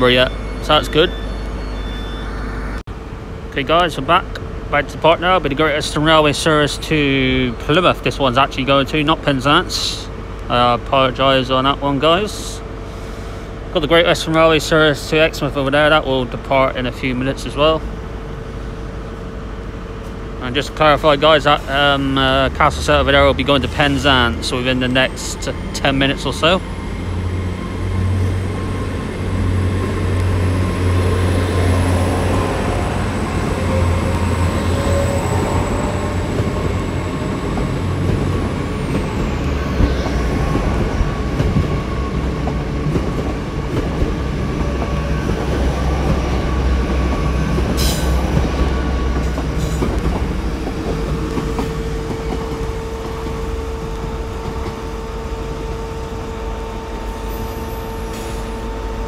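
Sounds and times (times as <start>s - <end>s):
high whine: 0.0s - 8.0s, 20.4s - 59.0s
train engine low drone: 0.0s - 59.0s.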